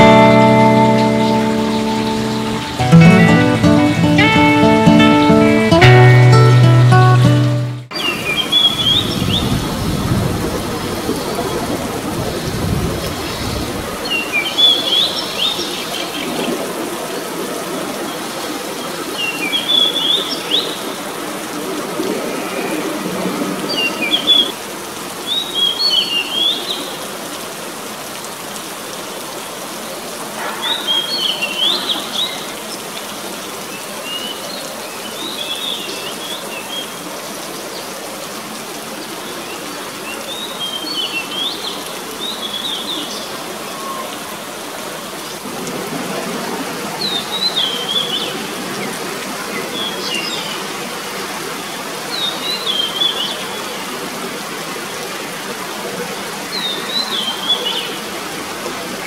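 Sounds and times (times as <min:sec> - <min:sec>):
songbird chirping: 0:00.0 - 0:09.6
rain falling: 0:00.0 - 0:59.0.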